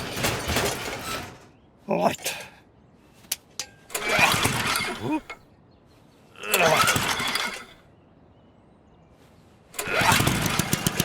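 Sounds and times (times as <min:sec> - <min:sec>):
lawn mower engine running: 0:03.9 - 0:05.4, 0:06.5 - 0:07.7, 0:09.8 - 0:11.0
starter cord rasping whirr: 0:03.9 - 0:05.4, 0:06.5 - 0:07.7, 0:09.8 - 0:11.0.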